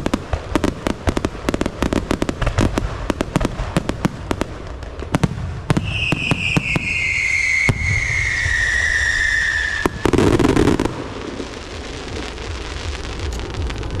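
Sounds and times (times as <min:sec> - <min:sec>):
firecrackers cracking: 0:00.0 - 0:14.0
firework burst: 0:00.0 - 0:14.0
firework whistle sliding down: 0:05.8 - 0:10.2
steady rumble: 0:10.9 - 0:14.0.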